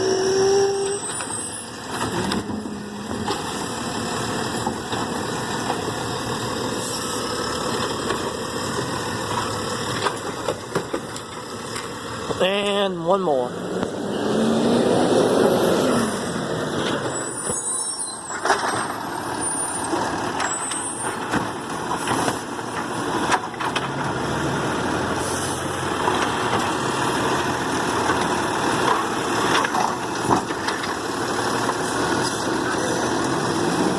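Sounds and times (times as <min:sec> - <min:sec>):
high squeal: 0:00.0 - 0:01.7, 0:17.1 - 0:21.2
garbage truck engine running: 0:00.1 - 0:14.8.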